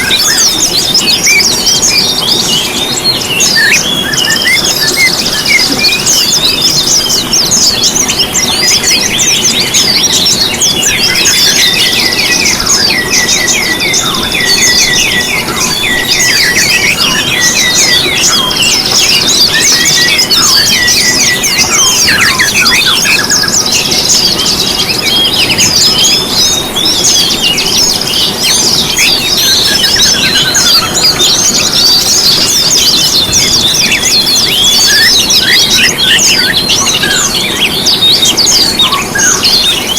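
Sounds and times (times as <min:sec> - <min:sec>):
songbirds chorus singing: 0:00.0 - 0:39.9.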